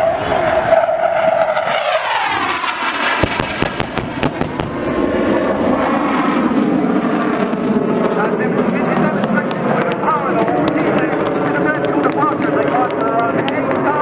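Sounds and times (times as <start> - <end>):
jet engine roar: 0.0 - 14.0
sharp explosion bangs: 3.2 - 5.8.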